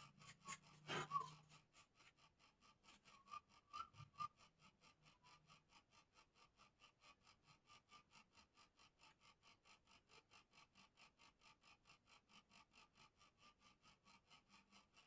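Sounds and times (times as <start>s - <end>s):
sharp scrape or knock: 0.5s - 1.3s.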